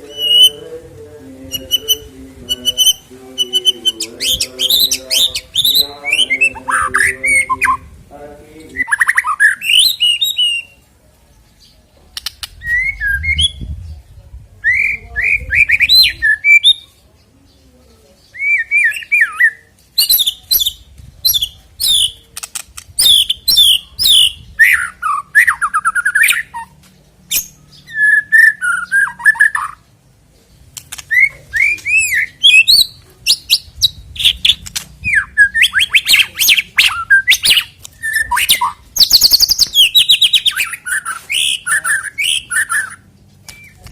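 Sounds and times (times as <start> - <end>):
bird singing whistled phrases: 0.0 - 0.6, 18.3 - 22.2, 27.3 - 29.8, 31.1 - 43.8
bird chattering: 1.5 - 7.8, 30.7 - 43.9.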